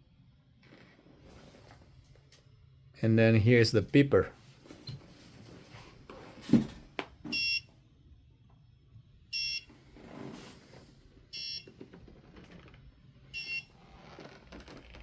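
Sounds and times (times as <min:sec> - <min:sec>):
short electronic beeps: 0:07.3 - 0:07.7.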